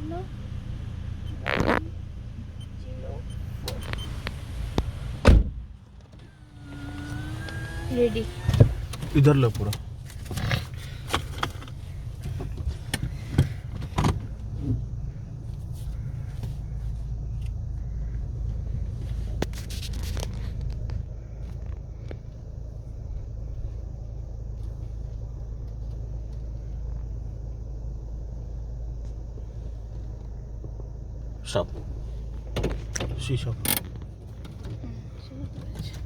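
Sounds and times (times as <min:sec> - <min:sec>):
car engine running: 0:00.0 - 0:36.0
sharp clicks and knocks: 0:32.5 - 0:34.8.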